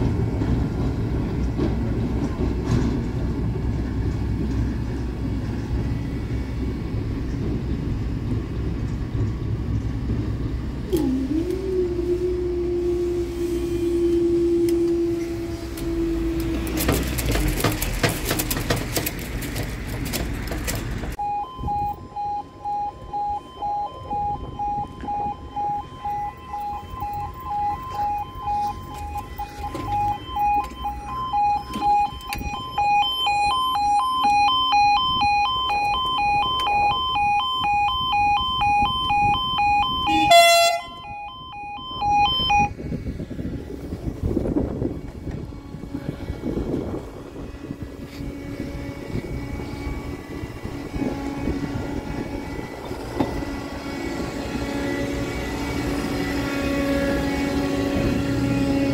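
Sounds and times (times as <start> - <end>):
level crossing two-tone alarm: 21.2 - 42.7.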